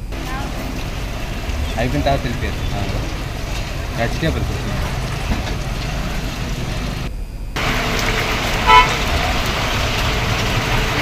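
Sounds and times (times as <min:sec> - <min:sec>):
outdoor street noise: 0:00.0 - 0:11.0
vehicle horn toot: 0:08.6 - 0:09.2.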